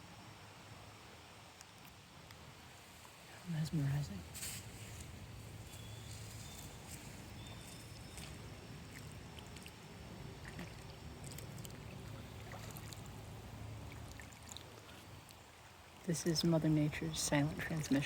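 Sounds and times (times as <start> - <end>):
steady low hum: 0.0 - 18.0
faint running water: 2.6 - 18.0.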